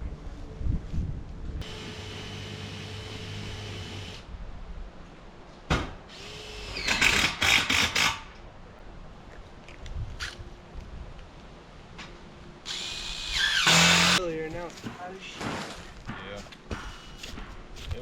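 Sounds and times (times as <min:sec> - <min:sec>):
power drill running: 0:01.6 - 0:04.2, 0:12.7 - 0:14.2.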